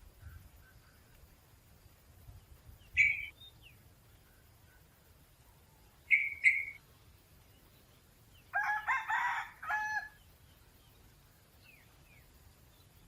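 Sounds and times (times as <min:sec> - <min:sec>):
sharp bird notes: 0:02.8 - 0:03.7, 0:06.0 - 0:06.8
junglefowl crowing: 0:08.5 - 0:10.2.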